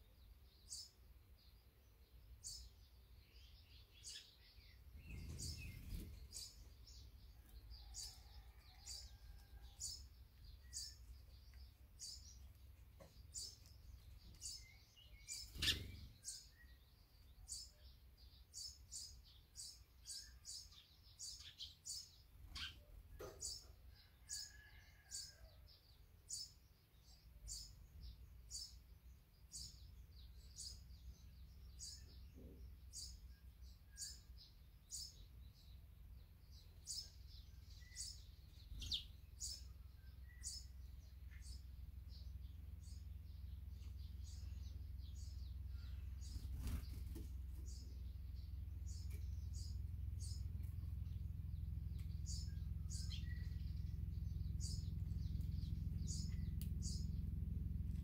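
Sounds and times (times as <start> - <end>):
low rumble: 40.6 - 58.0.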